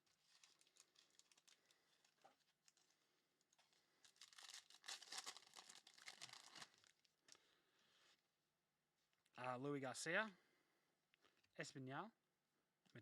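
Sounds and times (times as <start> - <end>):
wrapper crinkling and tearing: 0.0 - 2.9, 3.6 - 7.4.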